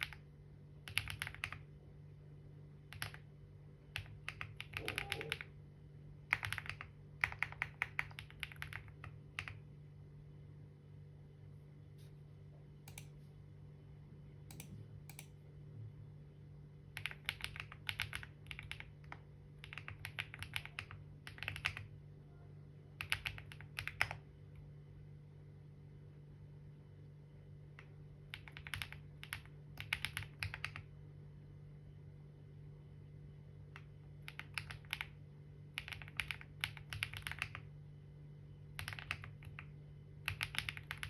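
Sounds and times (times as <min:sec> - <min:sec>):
typing on computer keyboard: 0:00.0 - 0:01.7, 0:02.9 - 0:03.3, 0:03.9 - 0:05.5, 0:06.3 - 0:09.6, 0:17.0 - 0:21.9, 0:23.0 - 0:24.2, 0:27.8 - 0:30.9, 0:33.8 - 0:37.7, 0:38.7 - 0:41.0.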